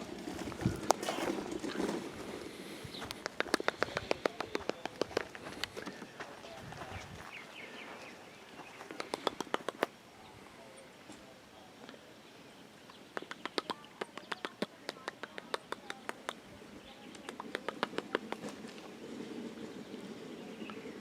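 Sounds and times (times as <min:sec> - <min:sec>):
faint outdoor background: 0:00.0 - 0:21.0
quick sharp clicks: 0:08.9 - 0:09.9, 0:13.2 - 0:16.4.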